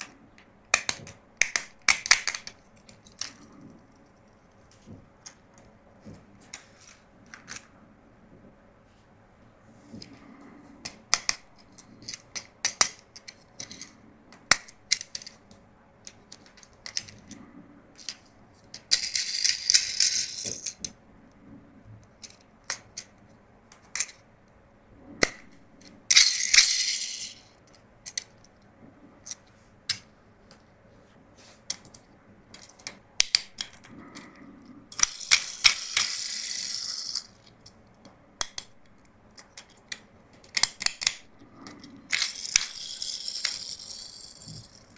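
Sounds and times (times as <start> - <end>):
plastic pieces clicking: 0.0 - 3.5, 10.8 - 17.4, 18.0 - 21.0, 22.1 - 24.2, 25.2 - 28.5, 31.7 - 44.9.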